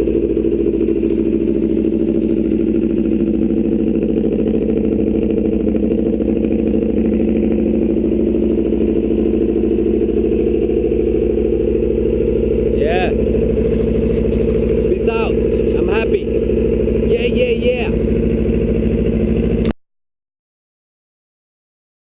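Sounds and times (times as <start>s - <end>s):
motorcycle engine idling: 0.0s - 19.8s.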